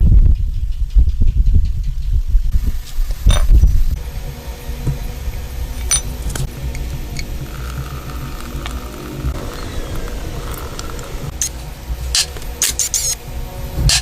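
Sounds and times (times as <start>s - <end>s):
low mechanical rumble: 0.0s - 14.0s
sharp metallic clinks and knocks: 5.8s - 7.3s.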